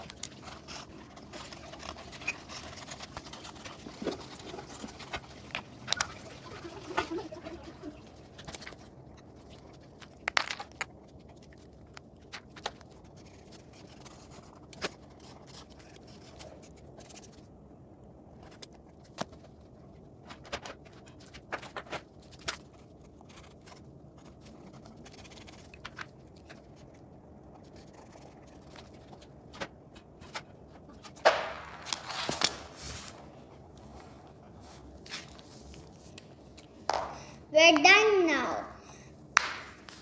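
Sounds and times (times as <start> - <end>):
faint background hiss: 0.0 - 10.8, 26.2 - 40.0.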